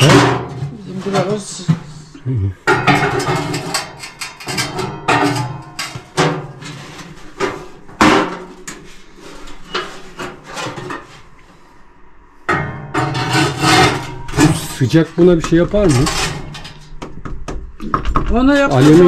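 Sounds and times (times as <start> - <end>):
hard objects knocking and clattering: 2.6 - 8.9, 12.5 - 19.0.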